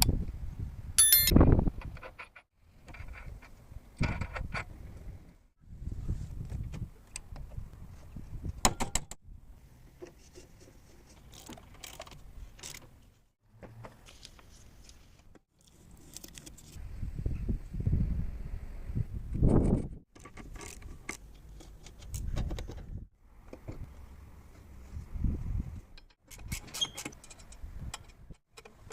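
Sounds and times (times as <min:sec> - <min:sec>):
metal tools clinking and tapping: 0:01.0 - 0:01.3.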